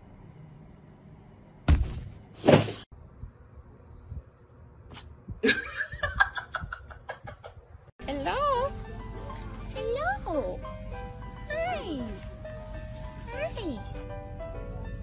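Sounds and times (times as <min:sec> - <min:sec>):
person laughing: 0:05.4 - 0:07.6.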